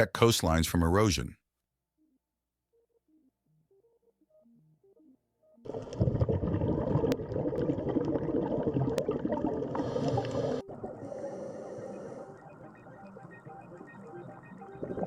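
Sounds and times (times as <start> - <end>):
deep underwater rumble: 5.7 - 15.0
underwater bubbling and gurgling: 5.7 - 15.0.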